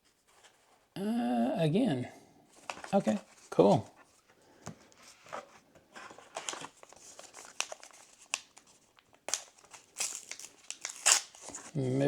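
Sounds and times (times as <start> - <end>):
cards rustling: 2.5 - 4.0, 4.6 - 11.8
foil wrapper crinkling: 6.4 - 11.7.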